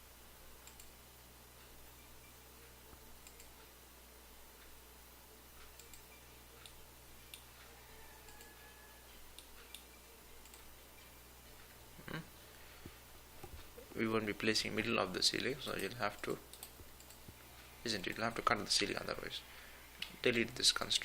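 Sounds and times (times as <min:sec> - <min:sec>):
low electrical hum: 0:00.0 - 0:21.0
computer mouse clicks: 0:00.6 - 0:00.9, 0:03.2 - 0:03.6, 0:05.6 - 0:07.5, 0:08.2 - 0:08.7, 0:09.3 - 0:10.7, 0:15.7 - 0:17.3.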